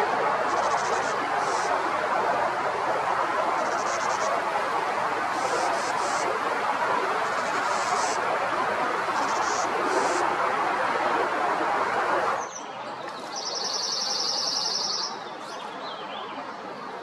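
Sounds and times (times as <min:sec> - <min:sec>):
broad rushing noise: 0:00.0 - 0:17.0
songbird trilling: 0:12.4 - 0:16.3.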